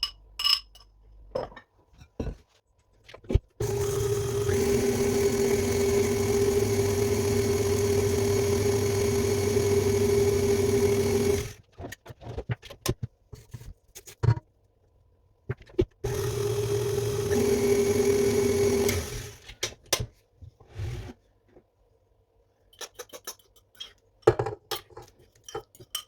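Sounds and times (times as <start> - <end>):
electric mixer motor running: 3.6 - 11.6, 16.1 - 19.5.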